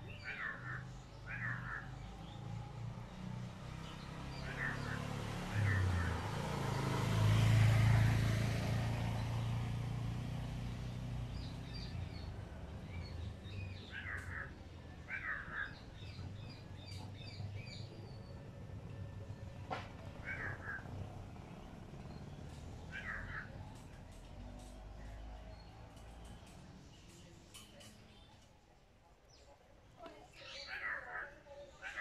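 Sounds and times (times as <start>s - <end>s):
harsh bird calls: 0.0s - 2.6s, 3.8s - 6.4s, 11.3s - 18.4s, 19.9s - 24.1s, 30.3s - 32.0s
birds chirping: 0.0s - 32.0s.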